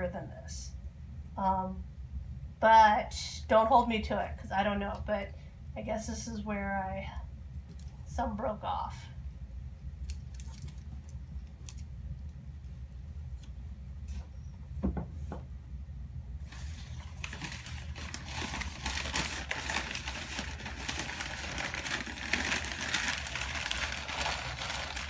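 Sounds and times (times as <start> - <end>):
low steady hum: 0.0 - 25.0
packaging crinkling: 10.0 - 11.9, 16.4 - 25.0.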